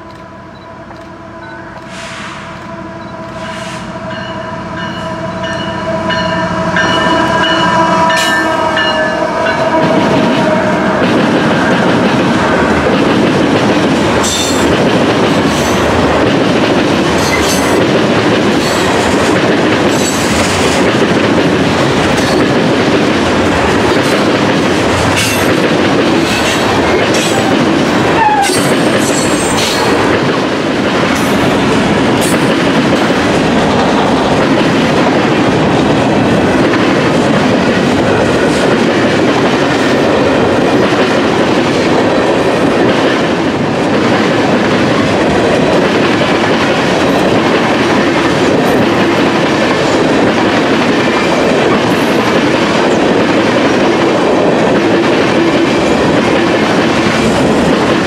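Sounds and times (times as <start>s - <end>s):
freight train horn: 0.0s - 12.6s, 26.4s - 29.5s
rumble of freight cars: 0.0s - 58.0s
train wheel squeal: 1.4s - 9.6s, 28.2s - 29.8s.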